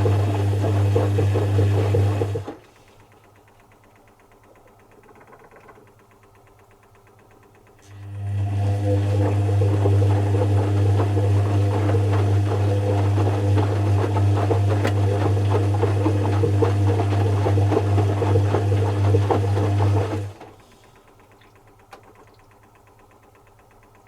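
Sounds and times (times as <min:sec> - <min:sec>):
washing machine humming: 0:00.0 - 0:24.0
crackling rattle: 0:03.0 - 0:07.8.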